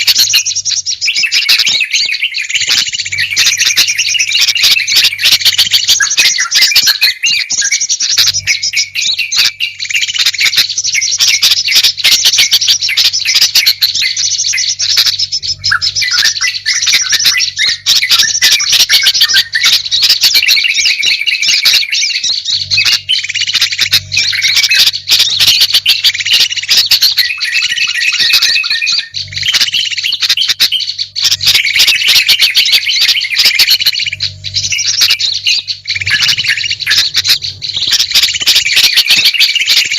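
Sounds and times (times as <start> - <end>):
songbirds chirping and chattering: 0.0 - 39.9.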